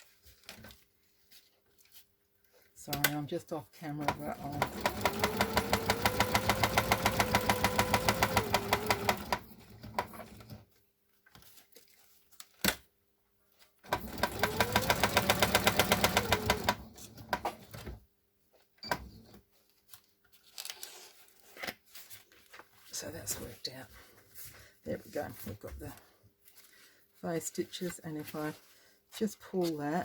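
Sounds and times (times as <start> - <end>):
sewing machine stitching: 4.0 - 10.6, 13.9 - 18.0.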